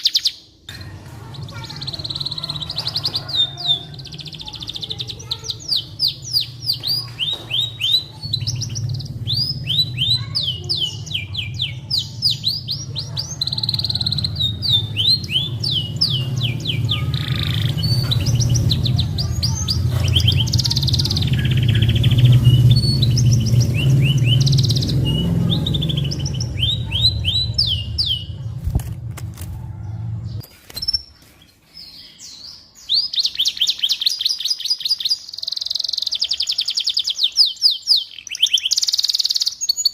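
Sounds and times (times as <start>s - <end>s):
canary singing trills: 0.0s - 39.9s
steady low rumble: 5.8s - 30.4s.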